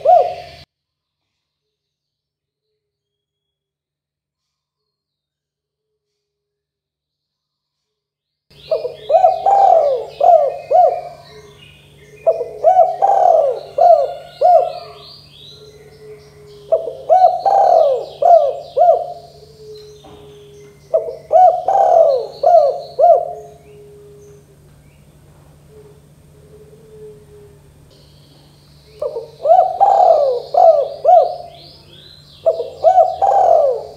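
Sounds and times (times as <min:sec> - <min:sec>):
dove cooing: 0:00.0 - 0:00.6, 0:08.6 - 0:33.9
small birds chirping: 0:00.0 - 0:00.7, 0:08.5 - 0:26.9, 0:27.5 - 0:33.9.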